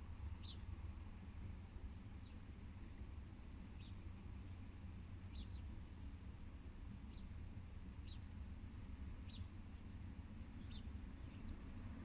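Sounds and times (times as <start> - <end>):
bird chirping: 10.6 - 11.6.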